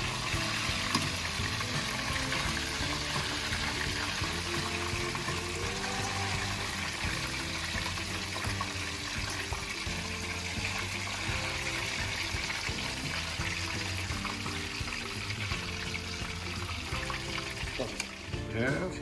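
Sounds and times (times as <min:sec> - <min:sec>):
background music: 0:00.0 - 0:19.0
chicken sizzling in frying pan: 0:00.0 - 0:19.0.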